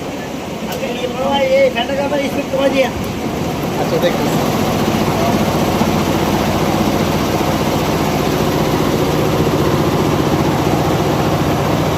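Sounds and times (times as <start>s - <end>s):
embroidery machine stitching clatter: 3.0s - 11.9s.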